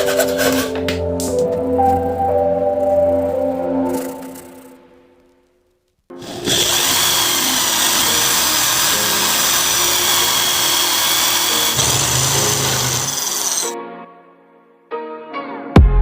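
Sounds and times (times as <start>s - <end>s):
power tool whining on wood: 6.1s - 13.7s.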